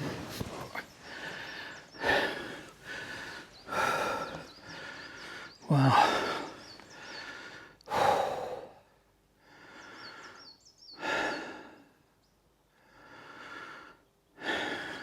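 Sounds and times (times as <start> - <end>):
small bird chirping: 0.0 - 7.3
man breathing heavily: 0.0 - 12.0, 12.8 - 15.0.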